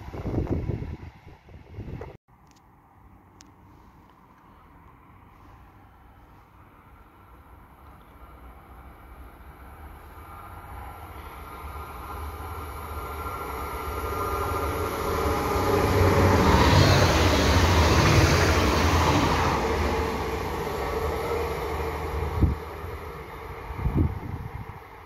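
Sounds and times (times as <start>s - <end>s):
train wheels rumbling on rail: 7.8s - 25.0s.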